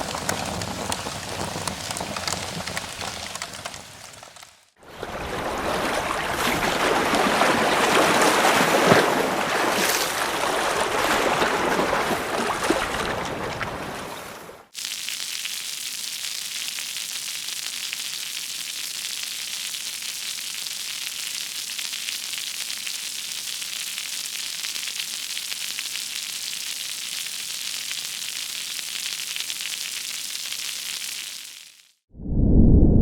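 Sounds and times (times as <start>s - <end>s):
high hiss with fine crackle: 14.7s - 32.0s.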